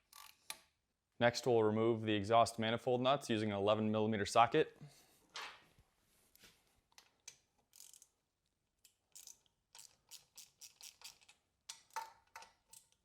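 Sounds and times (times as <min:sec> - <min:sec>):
socket ratchet clicking: 0:07.3 - 0:08.1, 0:08.9 - 0:13.0.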